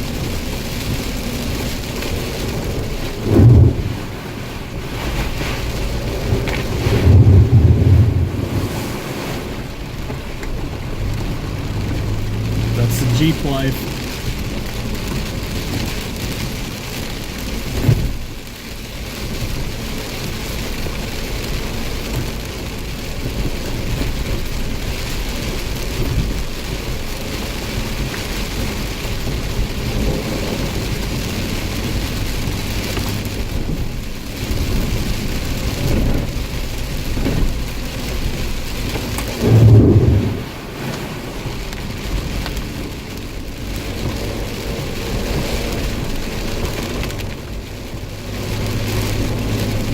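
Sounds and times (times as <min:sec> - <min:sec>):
thunder rumbling: 0:00.0 - 0:15.9, 0:34.5 - 0:43.0
heavy rain: 0:00.0 - 0:49.9.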